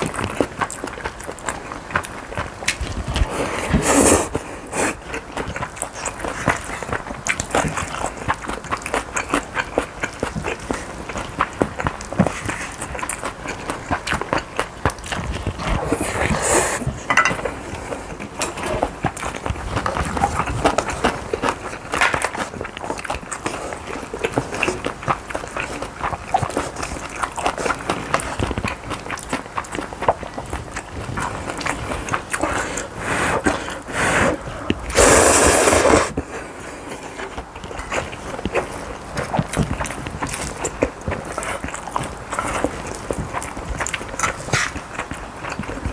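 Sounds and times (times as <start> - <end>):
chewing and mouth sounds: 0.0 - 45.9
spoon scraping a bowl: 16.0 - 17.6.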